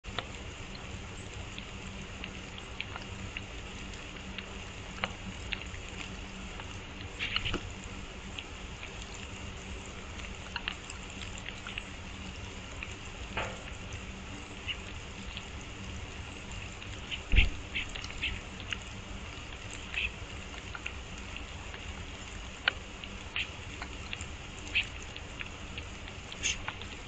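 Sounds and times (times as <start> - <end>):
light rain: 0.0 - 27.0
raindrops tapping sharply: 12.8 - 21.9.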